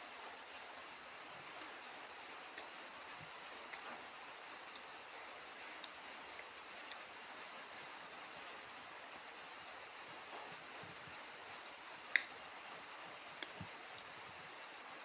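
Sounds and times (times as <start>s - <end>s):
faint steady hiss: 0.0s - 15.0s
mouth or utensil clicks: 12.1s - 12.3s.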